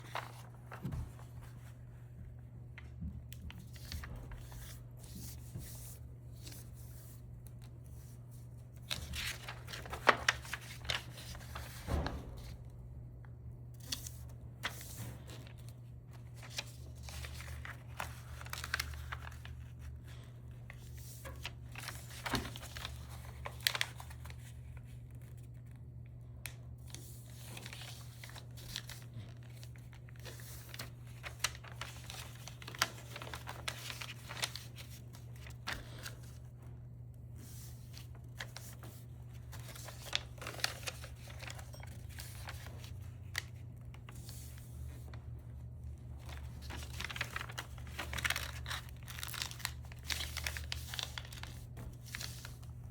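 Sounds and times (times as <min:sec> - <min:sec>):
crinkly material rustling: 0:08.7 - 0:11.9, 0:14.6 - 0:25.3, 0:26.9 - 0:36.4, 0:37.4 - 0:45.2, 0:46.1 - 0:52.9.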